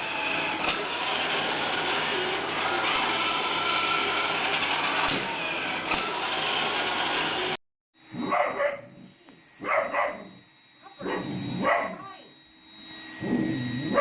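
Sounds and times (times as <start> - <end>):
robot vacuum whirring: 0.0 - 14.0
dog barking: 8.2 - 9.0, 9.6 - 10.4, 11.0 - 12.1.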